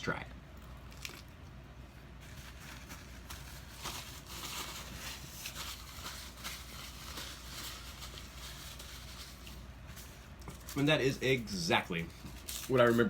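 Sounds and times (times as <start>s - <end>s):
person chewing food: 0.6s - 1.5s.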